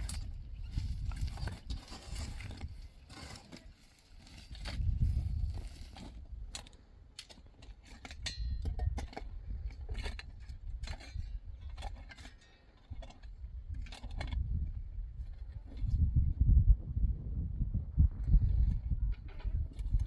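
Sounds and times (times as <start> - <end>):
low rumble: 14.4 - 20.0.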